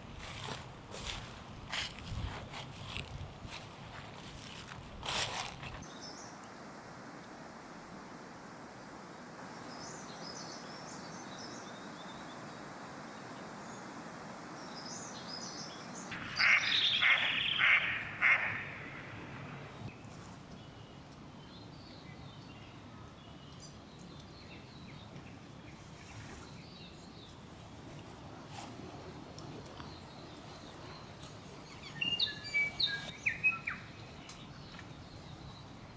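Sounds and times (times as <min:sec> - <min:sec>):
outdoor background hiss: 0:04.9 - 0:27.3
loud bird calls: 0:14.8 - 0:19.8.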